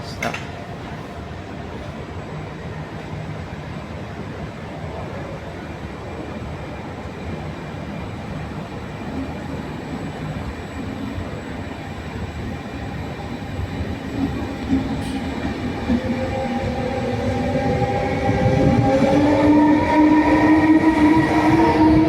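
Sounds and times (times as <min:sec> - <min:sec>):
train rumble: 0:07.6 - 0:22.0.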